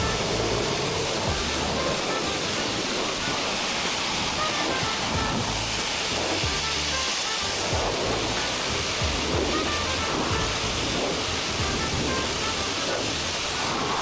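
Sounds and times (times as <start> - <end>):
background music with bass line: 0.0 - 2.0, 4.8 - 12.8
pressure washer spraying water: 0.0 - 14.0.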